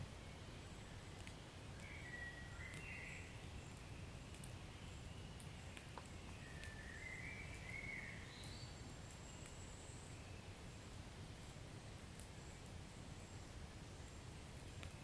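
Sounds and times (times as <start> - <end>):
wood fire crackling: 0.0 - 15.0
faint high chirps: 0.3 - 10.8.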